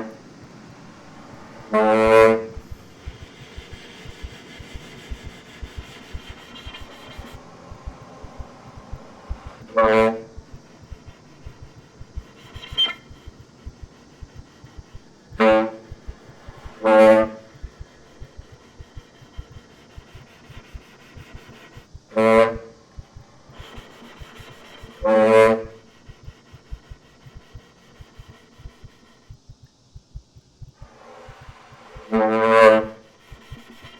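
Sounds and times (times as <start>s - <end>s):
soft ticks: 2.4s - 22.2s.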